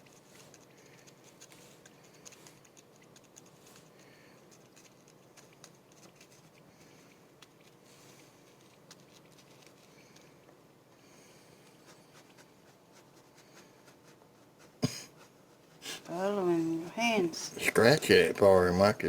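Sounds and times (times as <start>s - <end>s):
chicks clicking and scratching: 0.0s - 10.6s.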